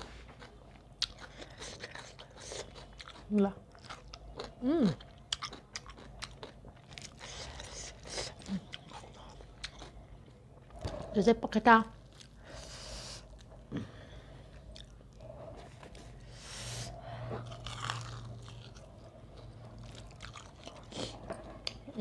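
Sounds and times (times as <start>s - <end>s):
chewing and biting: 0.0s - 11.0s, 14.5s - 16.2s, 17.3s - 21.9s.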